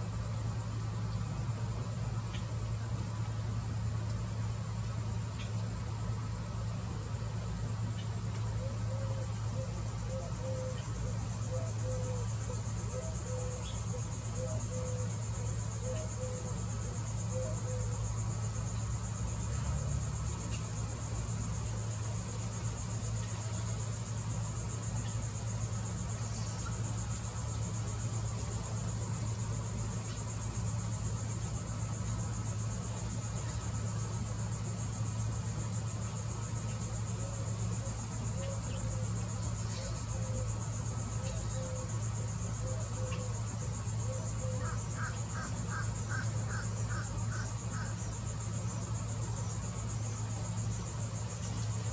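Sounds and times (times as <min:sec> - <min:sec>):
constant low hum: 0:00.0 - 0:51.9
high-pitched insect chorus: 0:00.0 - 0:51.9.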